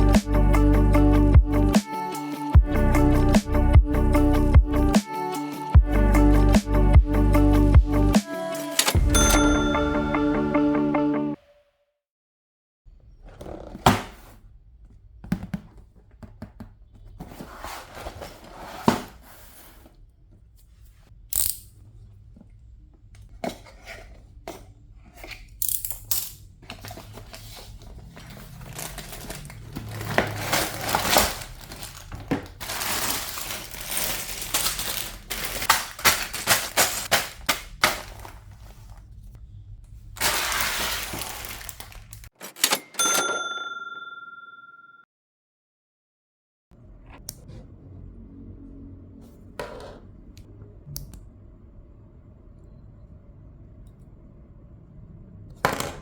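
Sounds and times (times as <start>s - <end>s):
plastic pieces clattering: 25.6s - 38.5s, 40.2s - 42.6s.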